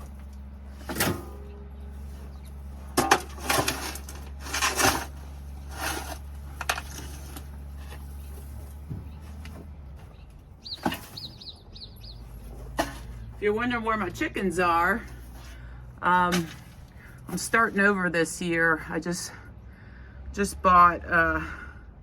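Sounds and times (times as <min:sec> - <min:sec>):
shovel scraping coop floor: 0:00.0 - 0:11.6, 0:12.2 - 0:18.0
steady low hum: 0:00.0 - 0:20.4
small bird chirping: 0:10.1 - 0:12.3.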